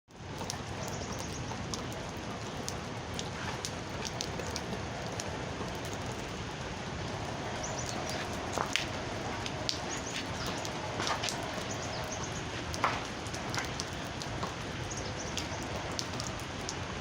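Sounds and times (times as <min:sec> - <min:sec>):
steady rain falling: 0:00.1 - 0:17.0
drops ticking on hard surface: 0:07.1 - 0:16.8.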